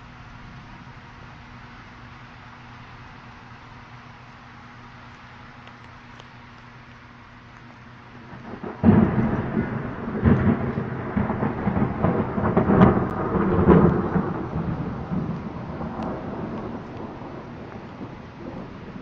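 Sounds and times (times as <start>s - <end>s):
light rain: 0.0s - 19.0s
thunder clap and rumble: 8.2s - 19.0s.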